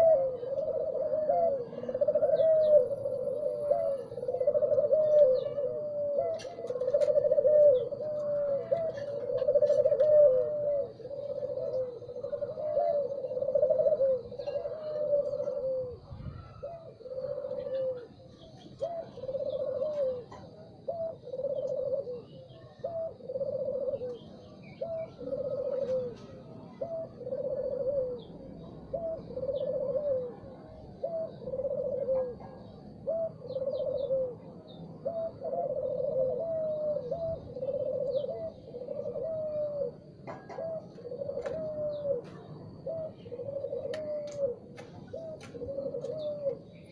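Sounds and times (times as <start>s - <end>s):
dove cooing: 0.0s - 46.9s
small birds chirping: 0.0s - 46.9s.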